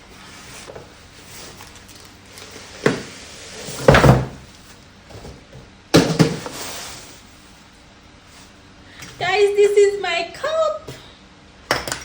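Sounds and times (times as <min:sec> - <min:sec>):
packaging being opened: 0:01.4 - 0:02.8.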